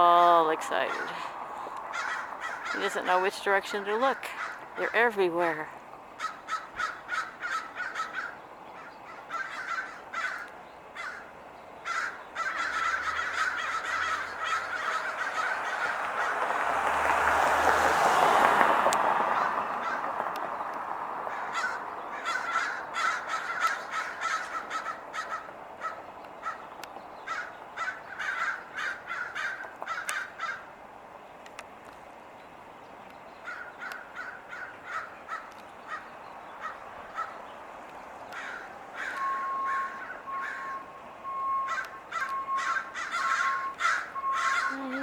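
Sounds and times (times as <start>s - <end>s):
crows cawing: 0.8s - 3.2s, 4.2s - 4.9s, 6.0s - 16.7s, 19.2s - 20.3s, 21.1s - 30.8s, 33.4s - 37.6s, 38.2s - 40.9s, 41.5s - 45.0s.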